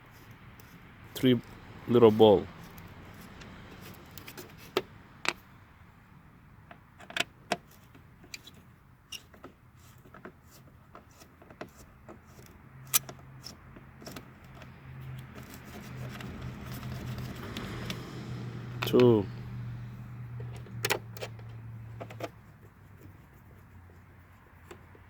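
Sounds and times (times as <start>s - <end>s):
metallic clicks of screws and tool: 11.0s - 18.0s.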